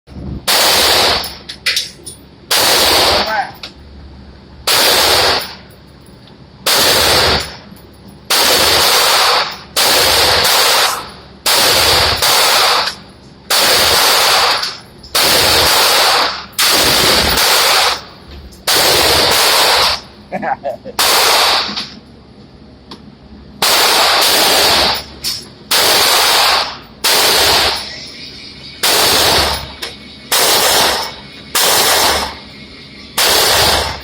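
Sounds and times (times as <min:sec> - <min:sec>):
automatic gunfire bursts: 0:00.5 - 0:01.4, 0:02.5 - 0:03.5, 0:04.7 - 0:05.6, 0:06.7 - 0:07.6, 0:08.3 - 0:18.1, 0:18.7 - 0:20.0, 0:21.0 - 0:21.8, 0:23.6 - 0:25.1, 0:25.7 - 0:27.9, 0:28.8 - 0:29.7, 0:30.3 - 0:32.4, 0:33.2 - 0:34.0.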